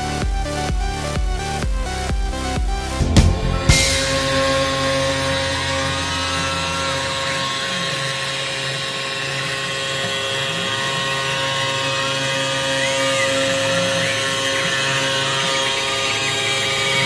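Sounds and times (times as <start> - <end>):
drive motors whine rising and falling: 0.0 - 9.7.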